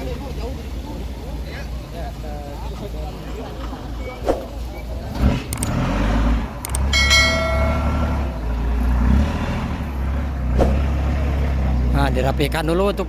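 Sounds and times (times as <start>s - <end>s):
truck diesel engine rumbling: 0.0s - 13.0s
sharp clicks: 5.5s - 5.8s, 6.6s - 6.9s.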